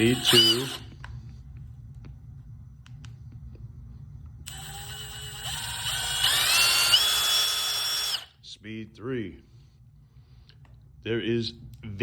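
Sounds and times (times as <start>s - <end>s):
impact driver whining: 0.0s - 1.0s, 4.5s - 8.3s.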